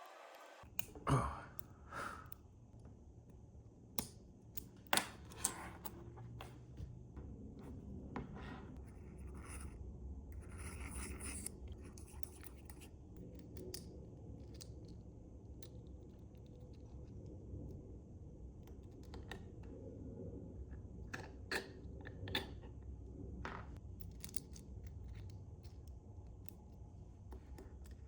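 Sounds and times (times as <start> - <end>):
low steady hum: 0.0 - 28.0
scratching and scraping: 7.6 - 9.8, 10.4 - 13.4.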